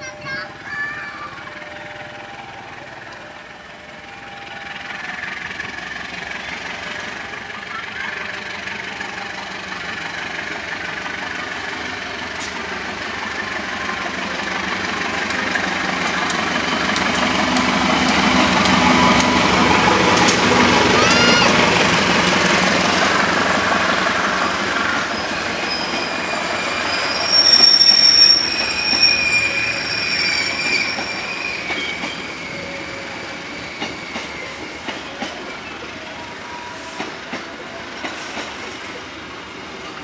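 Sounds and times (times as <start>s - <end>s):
locomotive engine: 0.0s - 40.0s
wheels clicking over rails: 10.2s - 26.7s
brief squeal: 25.0s - 34.9s.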